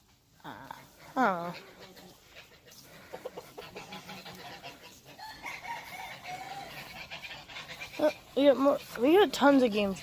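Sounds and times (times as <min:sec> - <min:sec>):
chickens clucking: 0:00.0 - 0:10.0
rooster crowing: 0:05.2 - 0:06.8.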